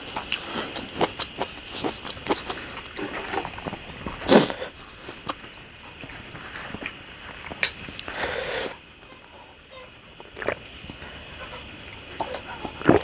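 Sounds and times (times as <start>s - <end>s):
mouth chewing and smacking food: 0.0s - 8.1s.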